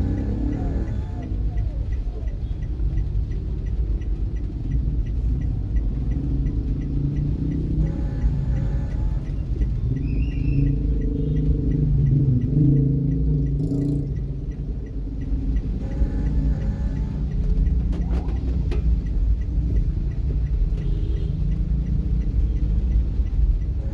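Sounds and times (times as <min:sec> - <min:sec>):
faint even ticking: 0:00.0 - 0:23.9
motor vehicle rumble: 0:00.0 - 0:23.9.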